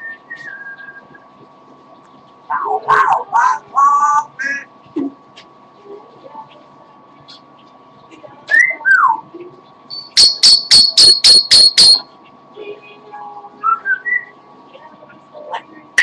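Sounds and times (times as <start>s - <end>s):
parrot chirping: 9.9s - 12.1s
parrot whistling: 9.9s - 12.1s.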